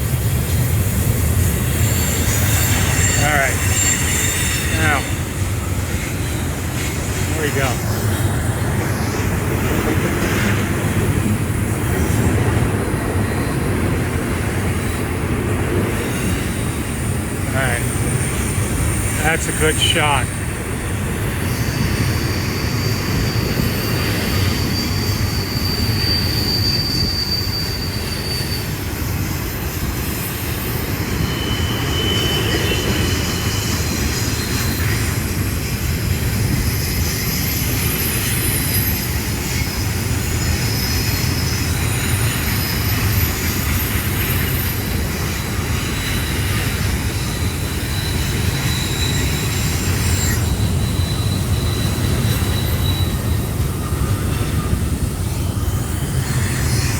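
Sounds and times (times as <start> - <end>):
train cars rumbling on rails: 0.0 - 56.9
high-pitched wheel squeals: 1.3 - 7.8, 21.4 - 56.9.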